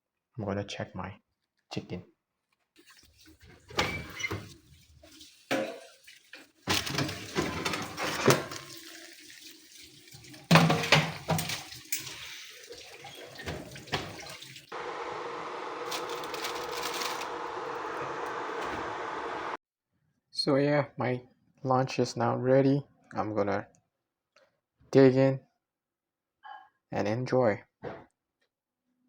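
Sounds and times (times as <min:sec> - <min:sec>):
kitchen knocks and clatter: 0:05.5 - 0:06.0, 0:06.6 - 0:09.0, 0:10.1 - 0:14.6
tap running into sink: 0:10.3 - 0:14.6.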